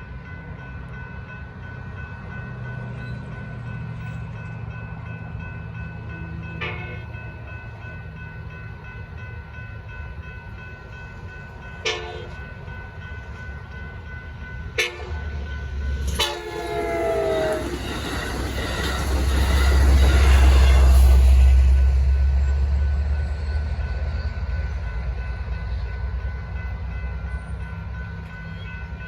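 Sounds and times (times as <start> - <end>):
crossing bells ringing: 0.0 - 29.0
train rumble: 0.0 - 29.0
train horn blasts: 11.8 - 12.4, 14.8 - 15.4, 16.0 - 18.0.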